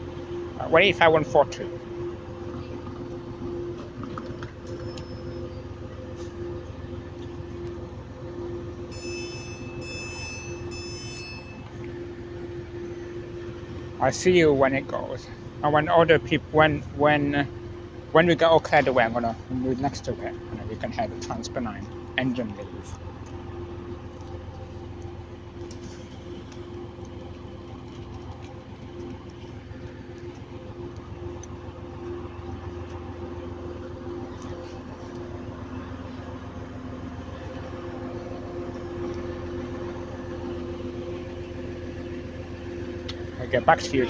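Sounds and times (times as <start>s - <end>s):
high-pitched whine: 0.0s - 23.7s
diesel train engine idling: 0.0s - 44.0s.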